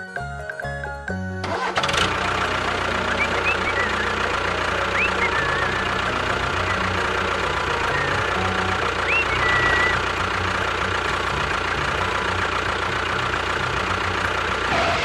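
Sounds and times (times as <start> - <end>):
engine idling: 0.1 - 15.0
bird-like chirps: 3.1 - 4.3, 4.9 - 7.0, 7.8 - 10.0.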